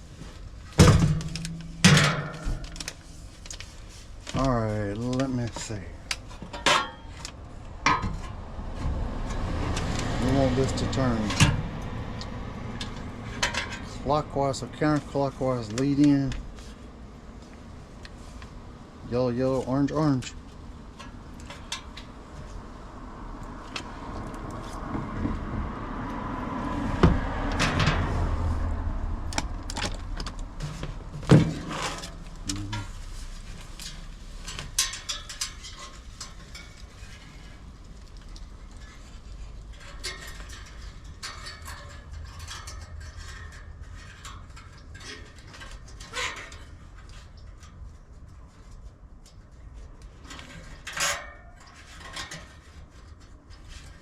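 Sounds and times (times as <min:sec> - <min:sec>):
metallic clicks and tool clatter: 0:12.2 - 0:16.5, 0:33.6 - 0:47.9, 0:48.6 - 0:54.0.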